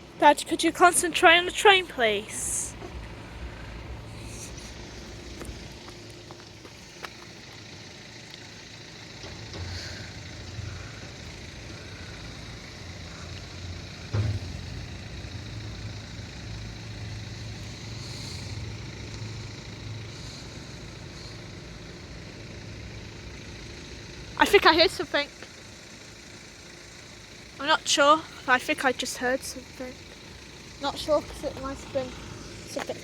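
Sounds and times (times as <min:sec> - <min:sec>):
vehicle engine idling: 0:00.0 - 0:33.0
sharp thump: 0:14.1 - 0:15.0.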